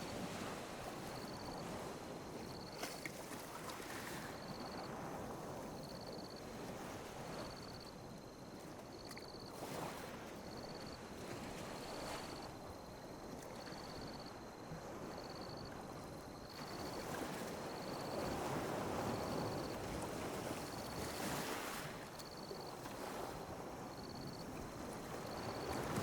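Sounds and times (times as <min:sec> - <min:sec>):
ocean waves lapping on beach: 0:00.0 - 0:26.0.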